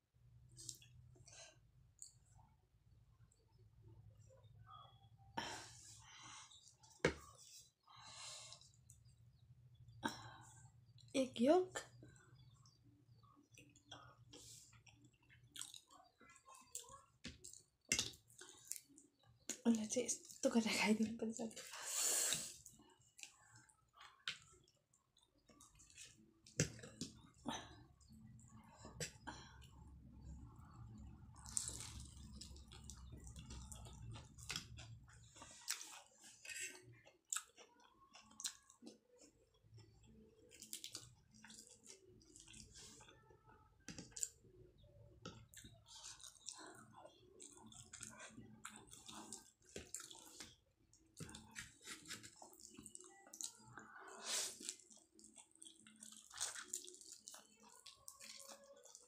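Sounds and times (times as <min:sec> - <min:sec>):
wet chewing and lip-smacking: 0:12.4 - 0:19.6, 0:30.4 - 0:43.2, 0:45.3 - 0:53.9, 0:54.6 - 0:59.0.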